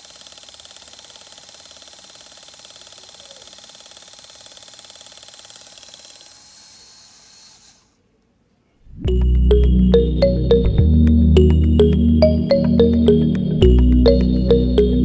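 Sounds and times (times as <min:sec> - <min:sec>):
small electric motor whirring: 0:00.0 - 0:08.0
loud background music: 0:09.1 - 0:15.0.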